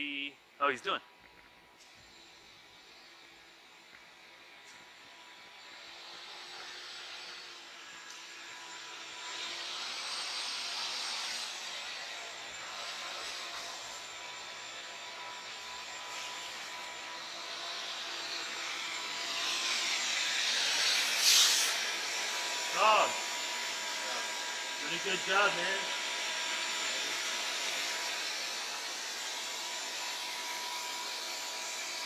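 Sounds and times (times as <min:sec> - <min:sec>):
vacuum motor whining: 0:08.0 - 0:32.0.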